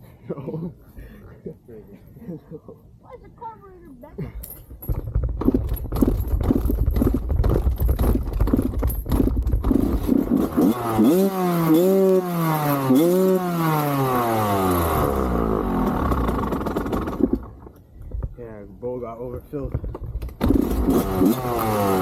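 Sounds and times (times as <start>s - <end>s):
clattering and knocks: 4.4s - 10.2s
dirt bike engine revving: 9.6s - 17.5s, 20.4s - 22.0s.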